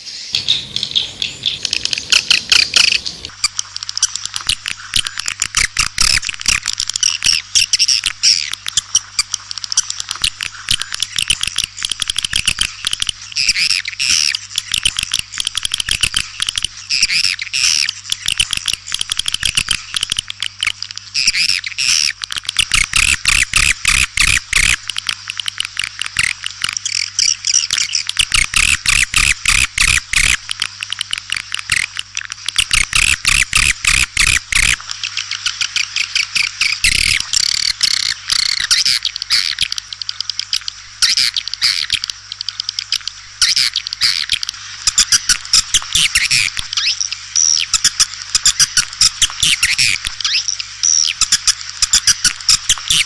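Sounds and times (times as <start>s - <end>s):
swiftlets chattering and chirping: 0.0s - 6.1s
faint steady hum: 0.0s - 53.0s.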